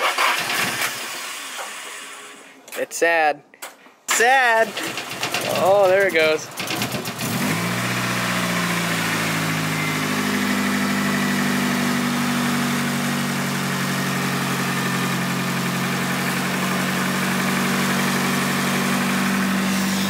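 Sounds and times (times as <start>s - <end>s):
car engine idling: 4.7s - 20.0s.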